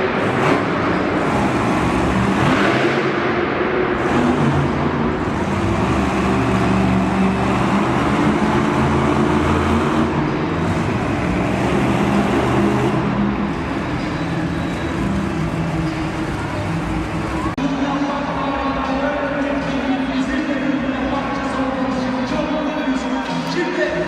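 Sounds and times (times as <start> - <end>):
monster truck engine running: 0.0 - 17.6.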